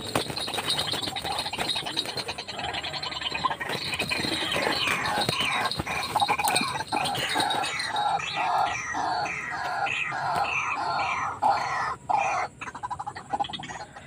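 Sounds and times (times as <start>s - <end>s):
quick clatter: 0.0s - 8.0s
waterhen calling harsh notes: 0.0s - 12.6s.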